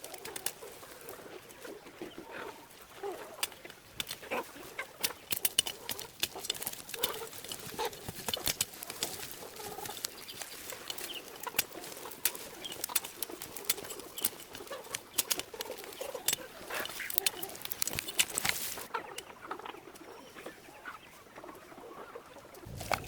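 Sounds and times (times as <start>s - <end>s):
chickens clucking softly: 0.1s - 17.7s, 18.8s - 23.0s
sharp clicks and taps: 5.0s - 18.8s.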